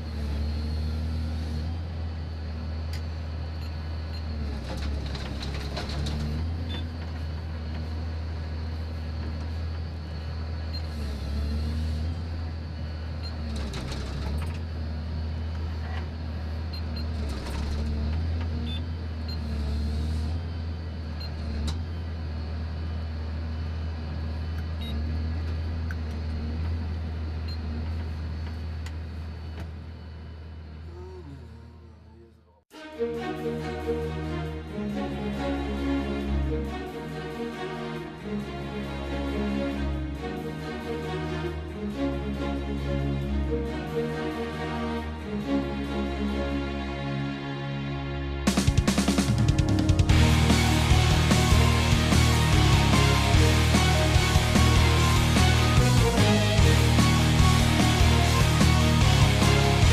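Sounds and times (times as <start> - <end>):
large engine humming: 0.0 - 59.9.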